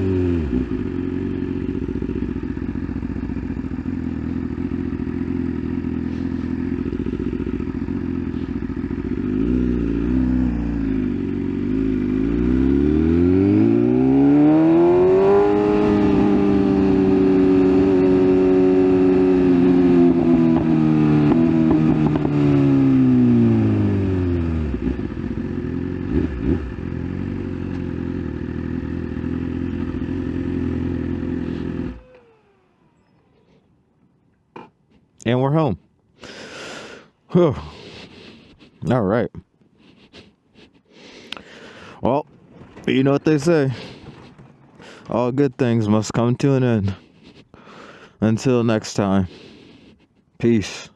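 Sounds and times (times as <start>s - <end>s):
motorcycle engine running: 0.0s - 33.6s, 41.5s - 47.5s.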